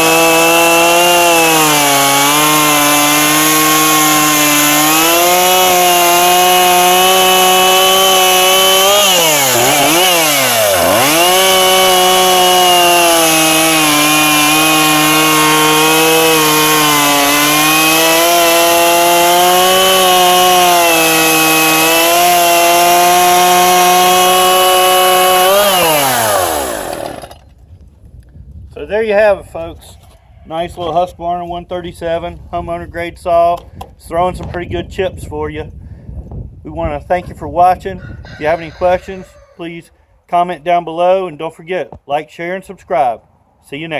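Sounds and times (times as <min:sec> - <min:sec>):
chainsaw cutting a log: 0:00.0 - 0:27.5.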